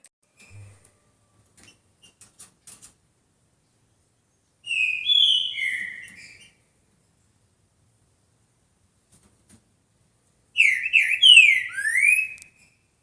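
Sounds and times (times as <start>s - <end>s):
bird singing whistled notes: 4.6s - 6.6s, 10.6s - 12.8s.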